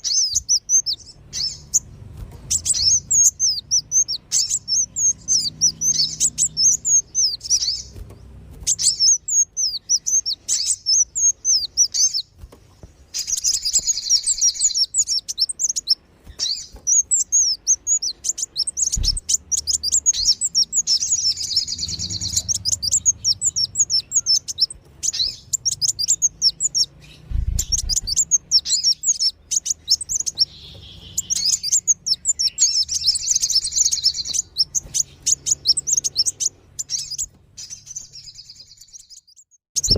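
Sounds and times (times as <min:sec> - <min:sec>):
bird twittering chirps: 0:00.0 - 0:39.9
low thumps: 0:27.2 - 0:28.1.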